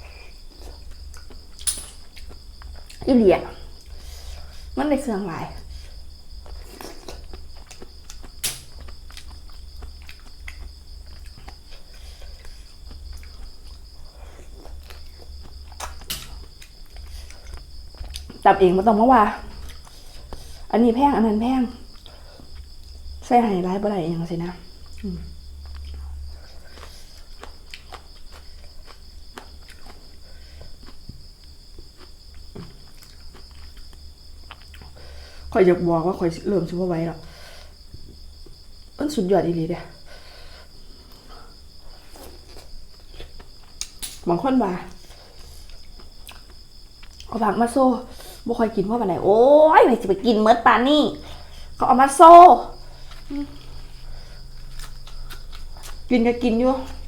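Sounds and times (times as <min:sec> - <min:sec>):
crickets chirring: 0:00.0 - 0:57.0
chewing crunches: 0:06.4 - 0:18.4, 0:24.8 - 0:35.0, 0:42.0 - 0:44.2, 0:45.2 - 0:47.3, 0:52.7 - 0:56.1.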